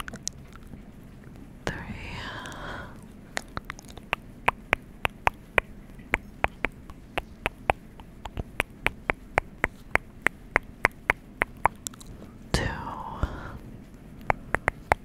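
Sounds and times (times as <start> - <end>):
faint steady hiss: 0.0 - 15.0
rapid sharp clicks: 3.4 - 12.1, 14.2 - 15.0.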